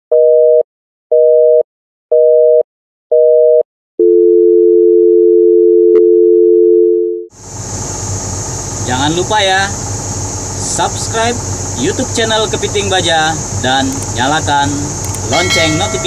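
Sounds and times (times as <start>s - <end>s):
dial tone: 3.2s - 7.3s
engine noise: 7.3s - 16.0s.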